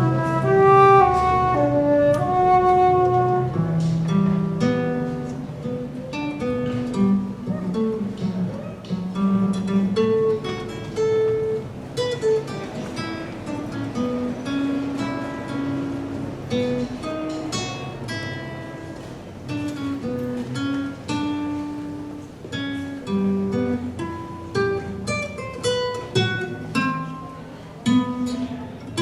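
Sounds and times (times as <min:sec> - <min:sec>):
wind instrument long notes: 0:00.0 - 0:04.0
acoustic guitar plucking: 0:00.0 - 0:29.0.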